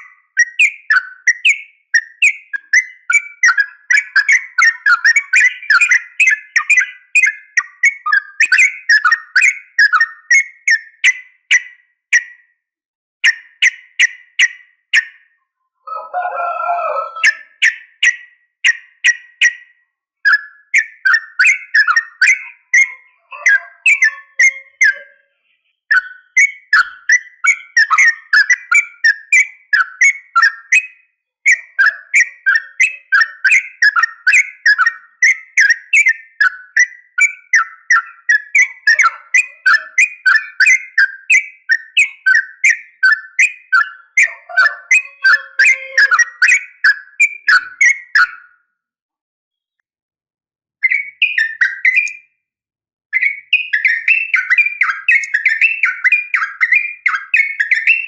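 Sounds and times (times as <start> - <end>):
bulbul chattering calls: 20.3 - 25.2, 31.5 - 48.4.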